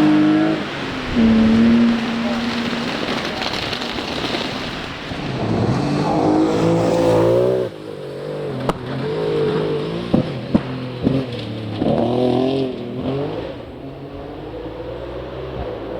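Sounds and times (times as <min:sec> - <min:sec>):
rally car engine revving: 0:00.0 - 0:15.9
tyre noise on gravel: 0:00.6 - 0:07.7.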